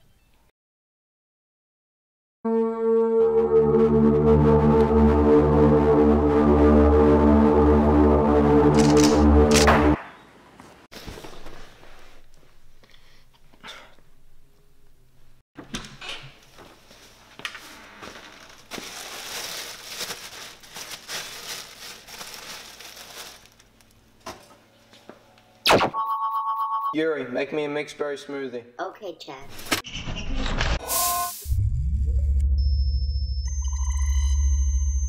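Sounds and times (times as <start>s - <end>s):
plastic bag crinkling: 18.0s - 24.0s.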